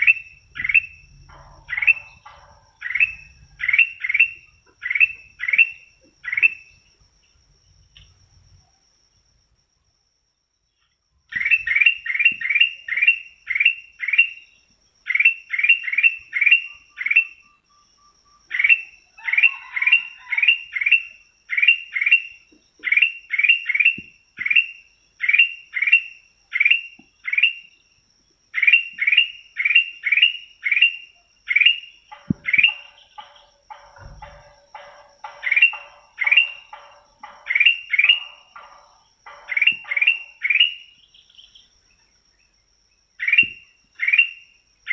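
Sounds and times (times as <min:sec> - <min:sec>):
songbird calling sharp notes: 0:00.0 - 0:08.2, 0:10.7 - 0:27.8, 0:28.5 - 0:44.9
faint high whine: 0:00.0 - 0:12.6.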